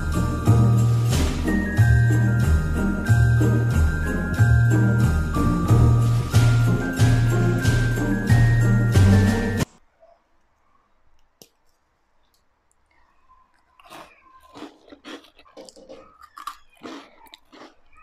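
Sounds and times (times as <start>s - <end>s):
crunching cookie: 13.2s - 18.0s.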